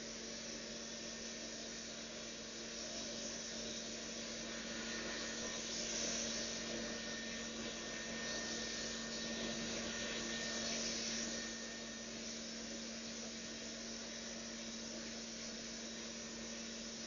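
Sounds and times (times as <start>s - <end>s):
robot vacuum running: 4.4s - 12.8s.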